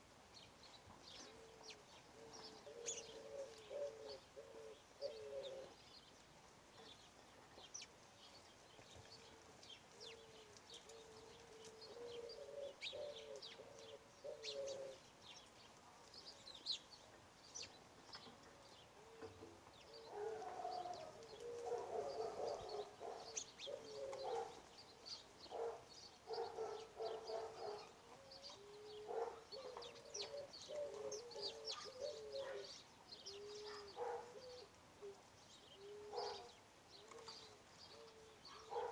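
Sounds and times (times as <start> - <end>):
low wavering bird calls: 1.2 - 5.8, 10.0 - 15.1, 19.0 - 38.9.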